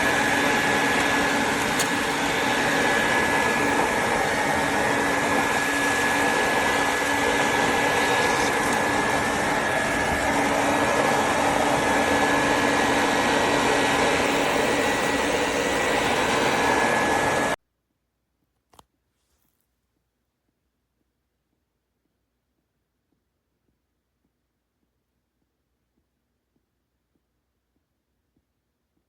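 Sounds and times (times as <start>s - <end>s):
vacuum cleaner running: 0.0s - 17.6s.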